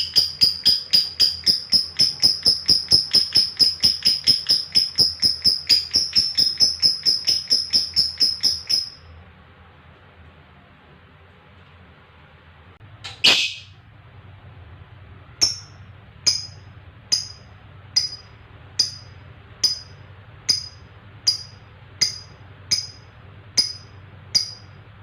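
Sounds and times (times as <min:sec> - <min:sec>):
lovebird short sharp chirps: 0:13.1 - 0:13.8.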